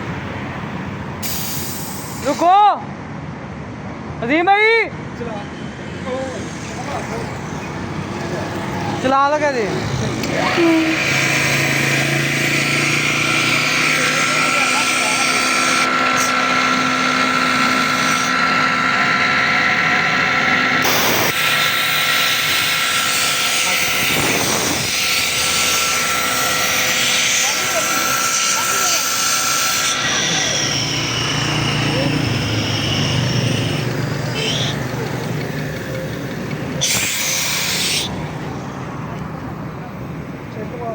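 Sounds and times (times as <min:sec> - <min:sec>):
air hiss burst: 0:01.2 - 0:02.4
air hissing: 0:01.2 - 0:02.4, 0:29.8 - 0:35.1
air compressor humming: 0:05.4 - 0:40.5.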